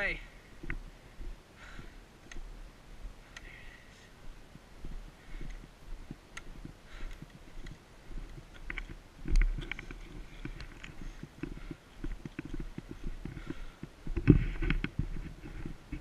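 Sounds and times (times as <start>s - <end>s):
camera rubbing thumps and rustling: 5.4s - 16.0s.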